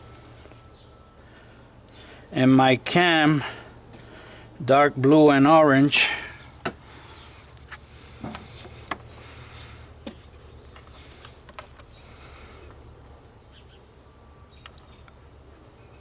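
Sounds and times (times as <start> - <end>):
steady low hum: 0.0 - 16.0
hands rustling wiring: 7.2 - 13.4.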